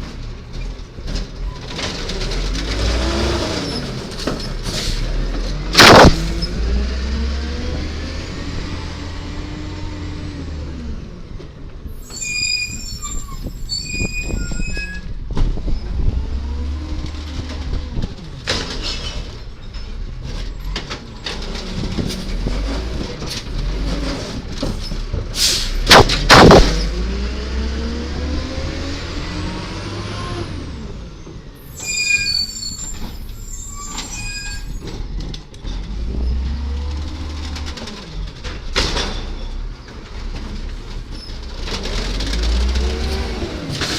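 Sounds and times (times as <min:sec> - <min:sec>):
garbage truck diesel engine revving: 0:05.0 - 0:11.0, 0:41.7 - 0:43.9
loud bang: 0:05.8 - 0:06.6, 0:25.9 - 0:27.0.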